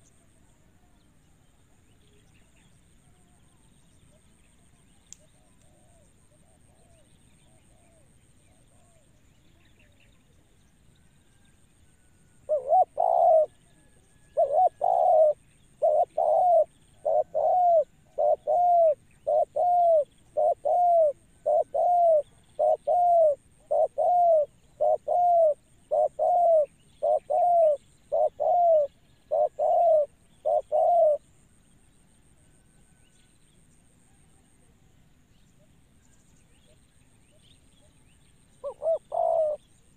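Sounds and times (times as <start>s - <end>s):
dove cooing: 12.5s - 31.2s, 38.6s - 39.7s.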